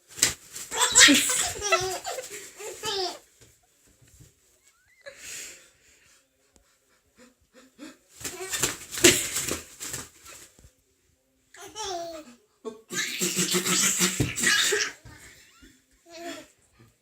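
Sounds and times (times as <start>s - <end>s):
baby laughing: 0.7s - 3.2s, 12.9s - 16.4s.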